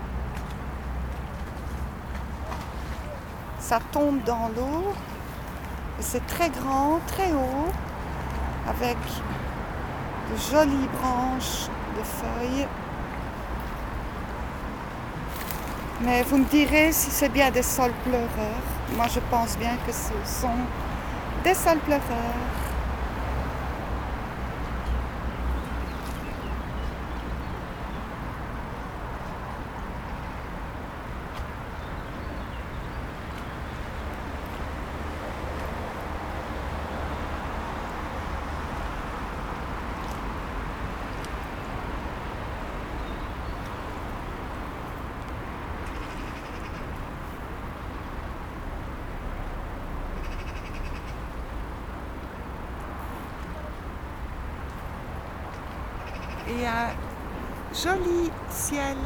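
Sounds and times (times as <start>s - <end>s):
low outdoor rumble: 0.0s - 30.7s.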